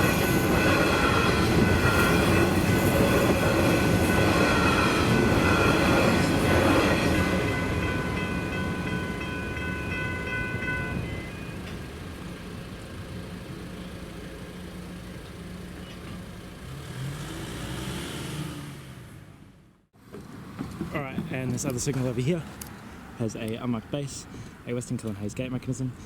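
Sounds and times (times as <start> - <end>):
level crossing bells ringing: 0.0 - 11.7
train wheels rumbling on rails: 0.0 - 16.4, 20.0 - 22.7.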